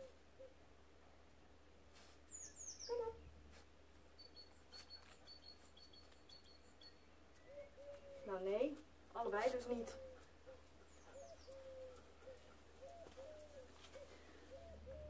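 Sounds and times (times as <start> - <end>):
bird chirps: 2.3 - 3.0, 4.2 - 8.4, 10.9 - 15.0.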